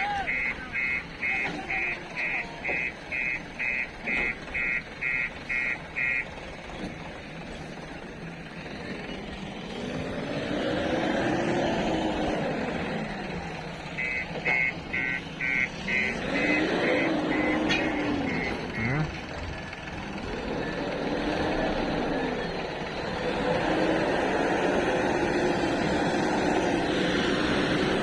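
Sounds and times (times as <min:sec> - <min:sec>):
reversing alarm beeping: 0:00.0 - 0:06.4, 0:13.7 - 0:19.2
diesel engine running and revving: 0:00.0 - 0:28.0.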